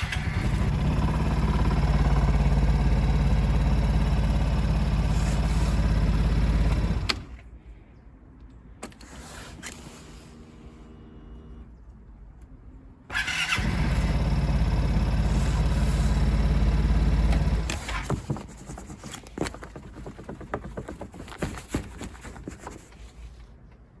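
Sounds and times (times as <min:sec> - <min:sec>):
scooter engine running: 0:00.0 - 0:07.3, 0:13.1 - 0:18.4
scooter starter whir: 0:00.0 - 0:07.4, 0:13.1 - 0:18.2.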